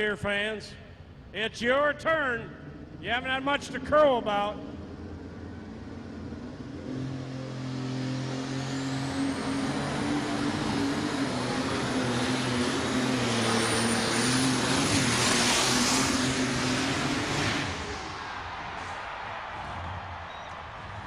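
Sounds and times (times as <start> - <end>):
high turbocharger whine: 2.5 - 19.2
tractor engine at full throttle: 2.6 - 18.2.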